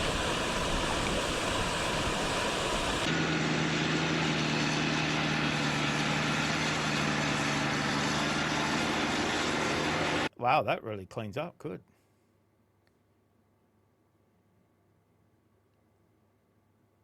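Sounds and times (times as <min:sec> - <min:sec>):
loud rushing noise: 0:00.0 - 0:03.2
engine droning: 0:00.0 - 0:10.3.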